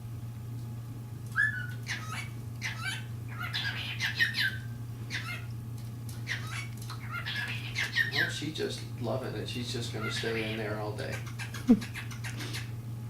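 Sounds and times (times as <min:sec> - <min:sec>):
cockatiels chirping and whistling: 0:01.3 - 0:05.4, 0:06.2 - 0:08.3, 0:10.0 - 0:12.7.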